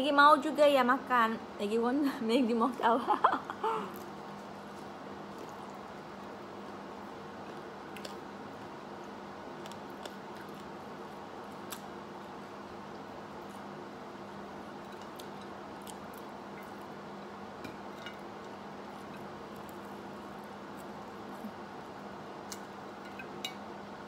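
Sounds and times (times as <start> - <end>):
faint hum: 0.0 - 24.0
faint chewing: 3.7 - 13.8, 14.6 - 17.0, 17.6 - 21.6.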